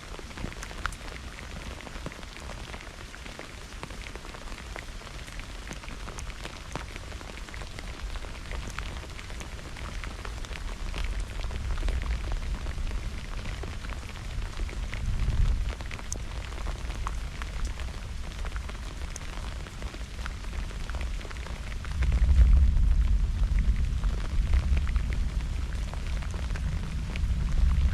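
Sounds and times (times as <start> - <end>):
raindrops pattering: 0.0 - 27.9
steady rain: 0.0 - 27.9
thunder rolling: 21.9 - 27.9.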